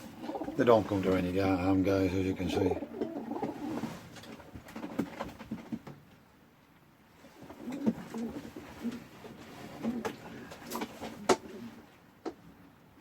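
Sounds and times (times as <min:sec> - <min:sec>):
pigeons cooing: 0:00.0 - 0:01.1, 0:02.4 - 0:04.0, 0:09.7 - 0:11.9.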